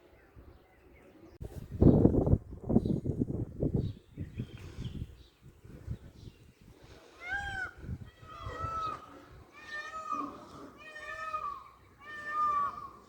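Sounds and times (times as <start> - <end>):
peacock calling: 7.1 - 13.0.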